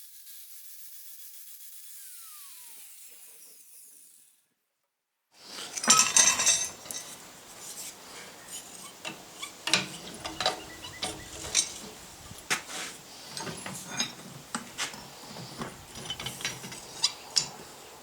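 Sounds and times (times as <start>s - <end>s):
power grinder: 0.0s - 4.4s.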